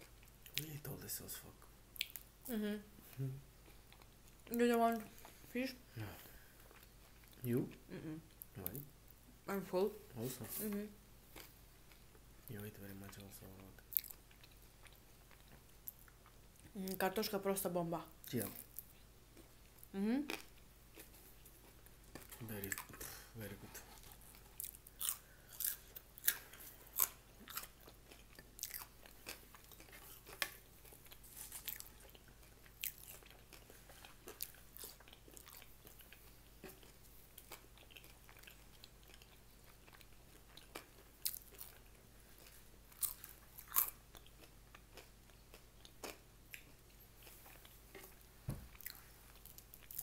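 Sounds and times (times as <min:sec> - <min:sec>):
food crunching: 0:23.9 - 0:50.0.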